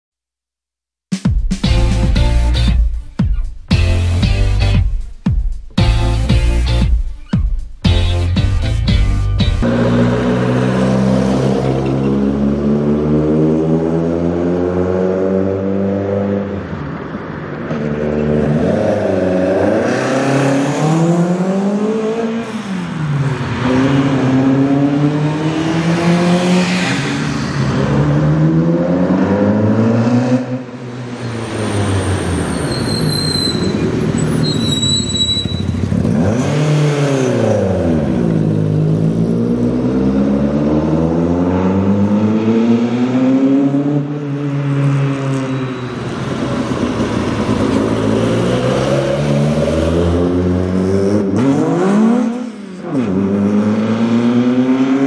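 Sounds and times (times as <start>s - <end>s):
car driving past: 9.6s - 34.4s
rally car engine accelerating: 17.7s - 32.5s, 35.8s - 45.1s, 46.3s - 55.0s.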